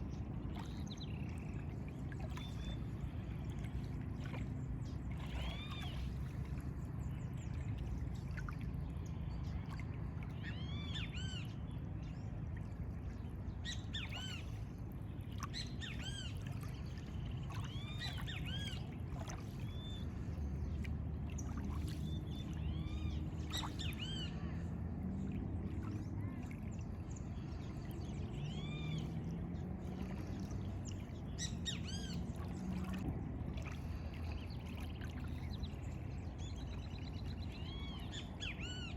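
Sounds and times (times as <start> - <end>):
low background rumble: 0.0 - 38.9.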